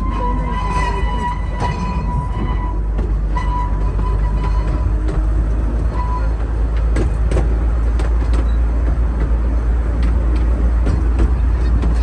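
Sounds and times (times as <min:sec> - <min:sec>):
miniature train rumbling: 0:00.0 - 0:12.0
wheels clicking on rails: 0:00.0 - 0:12.0.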